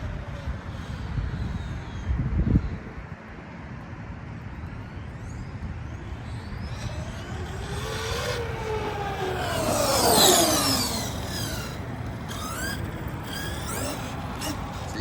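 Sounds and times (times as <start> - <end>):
toy truck electric motor whining: 6.2 - 15.0.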